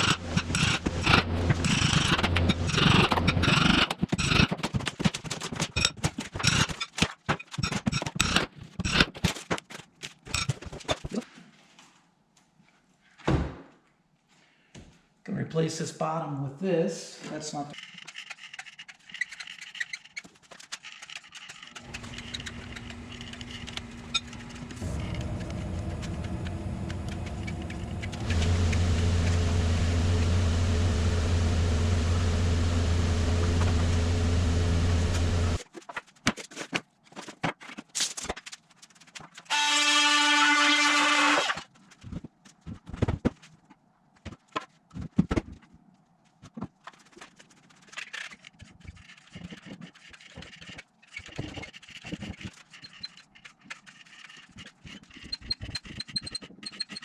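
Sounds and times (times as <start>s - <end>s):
machine running: 0.0s - 3.5s, 21.8s - 35.6s
high motor whine: 21.8s - 35.6s.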